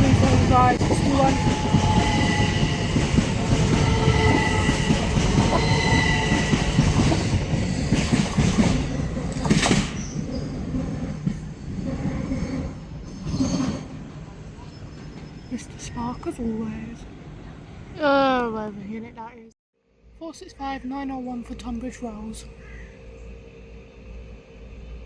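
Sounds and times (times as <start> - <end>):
train wheels squealing: 0.0 - 16.4
train rumble: 0.0 - 18.0.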